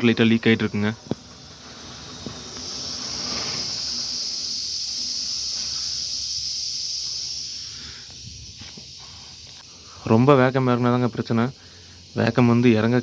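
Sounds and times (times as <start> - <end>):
air leak hissing: 0.0 - 13.0.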